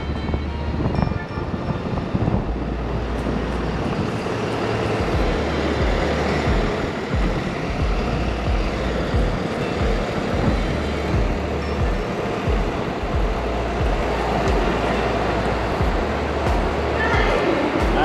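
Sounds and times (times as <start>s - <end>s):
road traffic noise: 0.0s - 18.0s
wind buffeting microphone: 0.0s - 18.0s.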